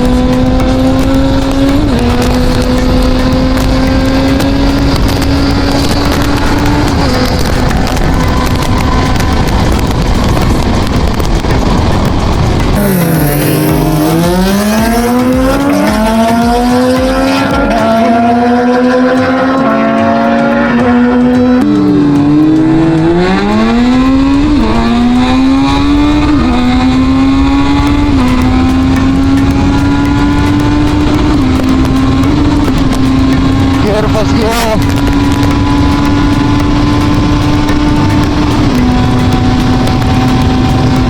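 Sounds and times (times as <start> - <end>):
motorcycle engine accelerating: 0.0 - 41.0.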